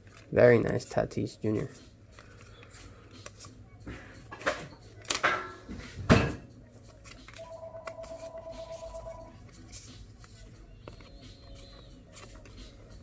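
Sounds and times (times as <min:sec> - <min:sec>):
cards and packaging rustling: 0:00.0 - 0:05.3, 0:06.6 - 0:13.0.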